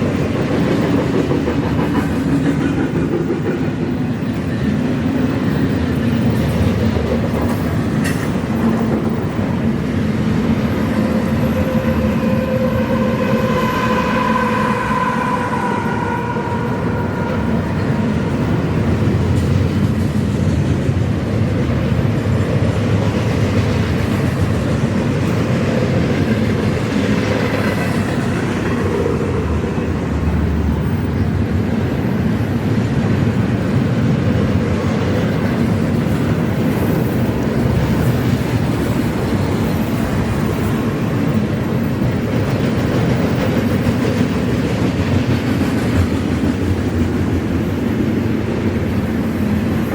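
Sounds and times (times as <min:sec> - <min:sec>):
wheels clattering on rails: 0:00.0 - 0:11.8, 0:16.5 - 0:49.9
freight train rumble: 0:00.0 - 0:49.9
train horn chord: 0:11.1 - 0:18.8.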